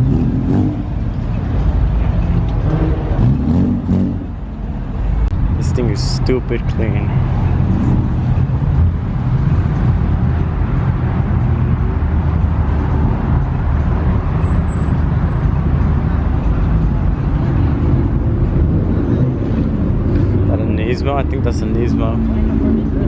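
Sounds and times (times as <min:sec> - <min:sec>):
car engines rumbling: 0:00.0 - 0:23.0.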